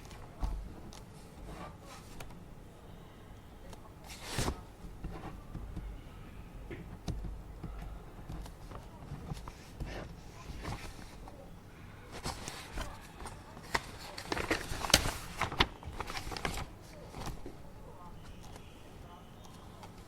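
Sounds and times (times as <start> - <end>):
rustle of handling: 12.1 - 17.5.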